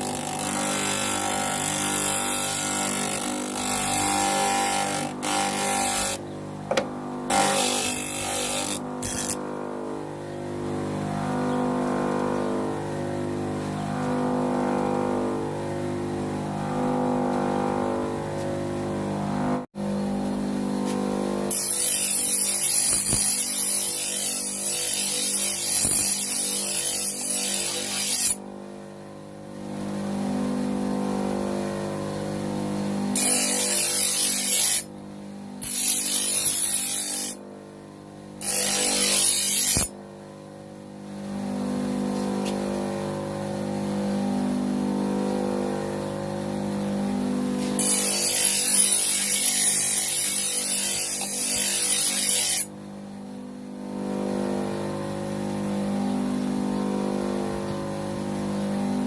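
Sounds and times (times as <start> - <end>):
bench grinder motor humming: 0.0 - 10.0, 29.6 - 34.9, 38.4 - 39.9, 41.2 - 52.7.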